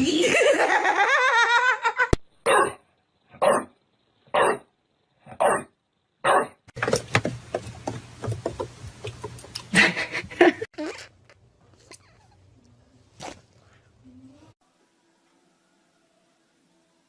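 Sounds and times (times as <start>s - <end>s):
dog barking: 2.5s - 2.8s, 3.4s - 3.7s, 4.3s - 4.6s, 5.4s - 6.6s.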